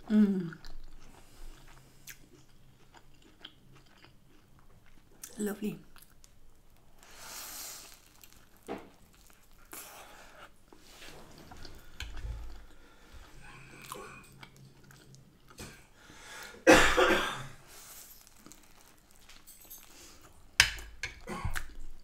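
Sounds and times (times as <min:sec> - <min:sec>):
close chewing: 0:00.6 - 0:06.2, 0:11.4 - 0:15.9
person coughing: 0:16.6 - 0:17.6, 0:21.2 - 0:21.6.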